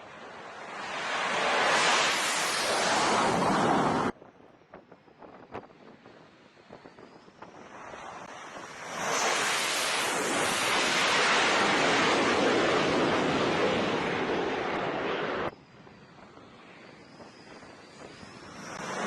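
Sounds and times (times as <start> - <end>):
loud steady rushing noise: 0.0 - 4.2.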